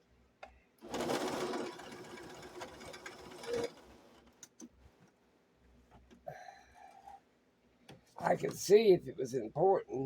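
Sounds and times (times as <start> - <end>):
electric sewing machine stitching: 0.8 - 4.3.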